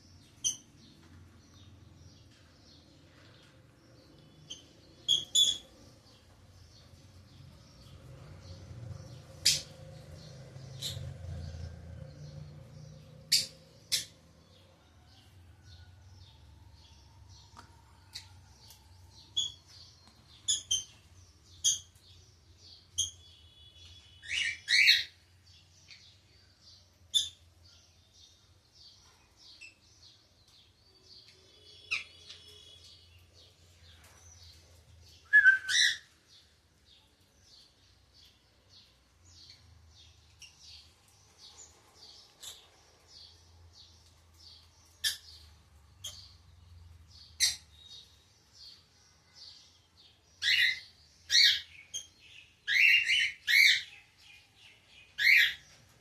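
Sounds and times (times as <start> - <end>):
birds twittering: 0.0 - 56.0
sharp bird calls: 31.3 - 33.2, 35.2 - 36.3, 50.4 - 55.8.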